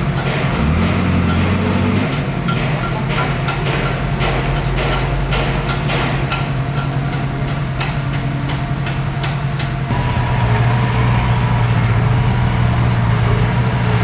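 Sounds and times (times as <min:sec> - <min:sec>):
bulldozer diesel engine running: 0:08.2 - 0:14.0
sharp metallic clicks and clanks: 0:09.9 - 0:14.0.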